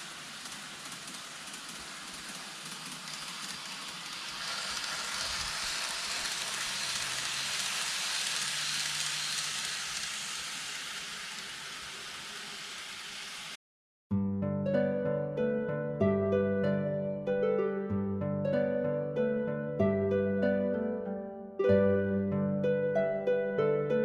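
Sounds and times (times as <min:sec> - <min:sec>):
model train rolling on track: 0:00.0 - 0:13.6.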